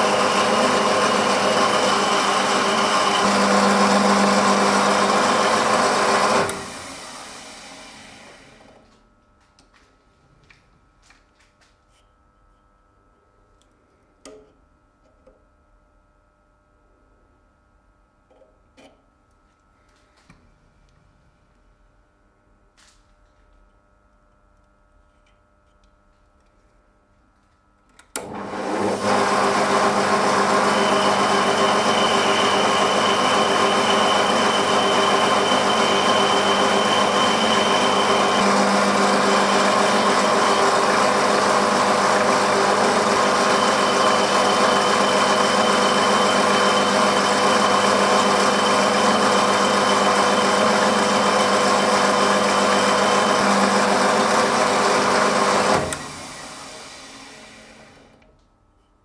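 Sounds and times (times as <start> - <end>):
electric motor humming and whining: 0.0 - 8.6, 28.2 - 58.0.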